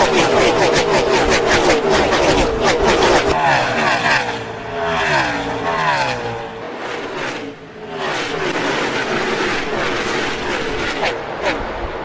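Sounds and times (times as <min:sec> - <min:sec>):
race car engine running hard: 0:02.5 - 0:12.0.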